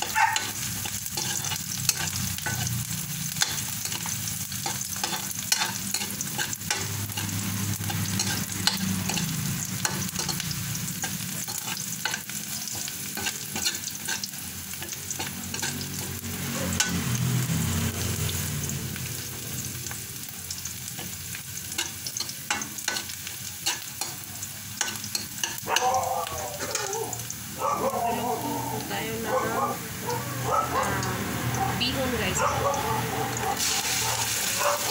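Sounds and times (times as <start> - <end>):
metal utensil scraping a wok: 0.0 - 18.4, 20.6 - 25.6, 26.6 - 26.9
onion and garlic sizzling in oil: 0.0 - 34.9.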